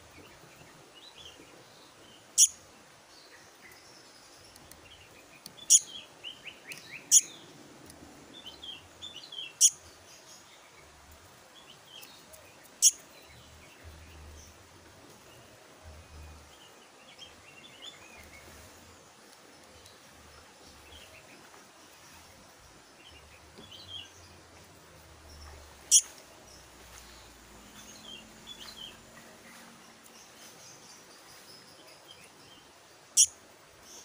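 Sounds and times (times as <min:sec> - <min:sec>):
bird sharp high chirps: 0:12.8 - 0:13.0, 0:25.9 - 0:26.1.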